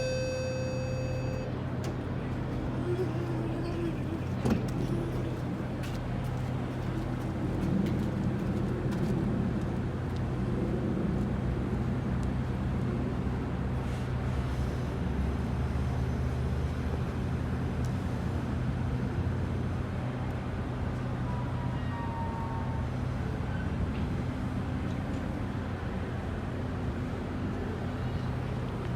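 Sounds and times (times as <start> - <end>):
diesel locomotive humming: 0.0 - 7.5.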